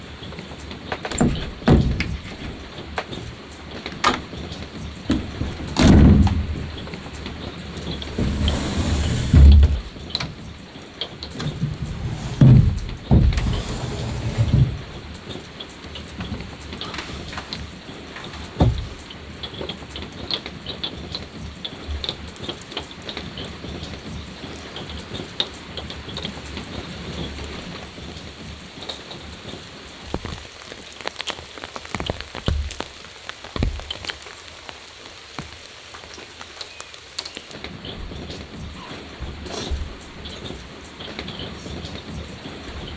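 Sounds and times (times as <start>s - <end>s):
rain drops tapping: 0.0s - 42.9s
heavy dull thuds: 5.1s - 7.0s, 11.4s - 15.0s.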